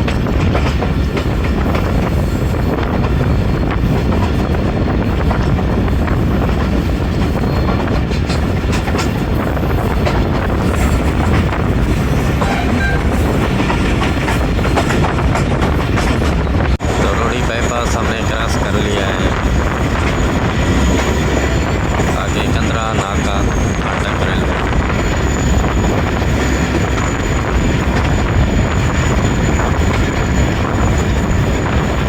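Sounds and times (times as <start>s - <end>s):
wheels clicking over rail joints: 0.0s - 16.6s
train running noise: 0.0s - 32.0s.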